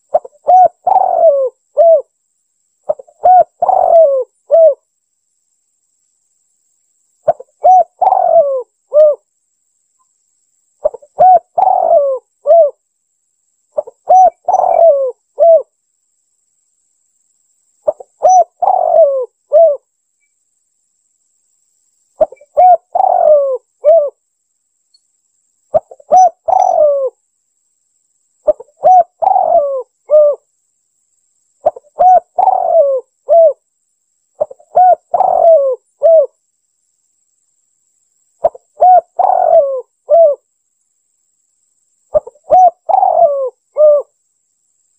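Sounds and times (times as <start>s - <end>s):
dove cooing: 0.0s - 2.1s, 2.9s - 4.8s, 7.2s - 9.2s, 10.8s - 12.8s, 13.8s - 15.7s, 17.8s - 19.8s, 22.2s - 24.2s, 25.7s - 27.2s, 28.4s - 30.4s, 31.6s - 33.6s, 34.4s - 36.4s, 38.4s - 40.4s, 42.1s - 44.2s.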